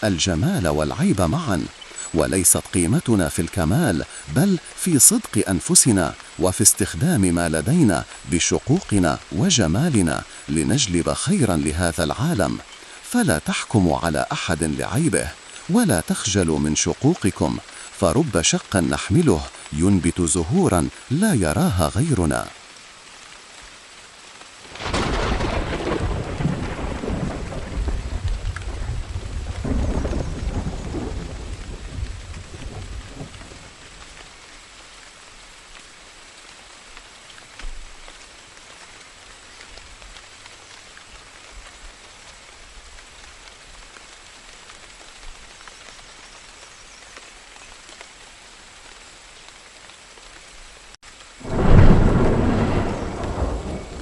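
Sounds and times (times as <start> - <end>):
steady rain: 0.0 - 54.0
thunder rolling: 24.8 - 33.5, 51.4 - 54.0.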